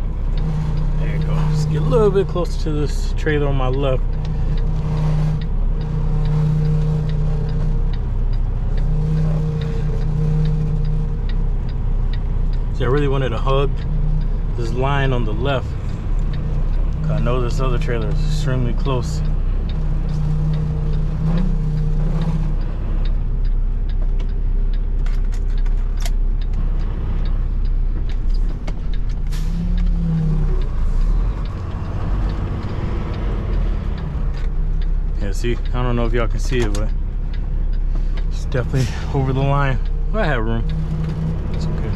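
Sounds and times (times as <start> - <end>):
diesel engine low rumble: 0.0 - 41.9
diesel truck engine idling: 25.8 - 41.9.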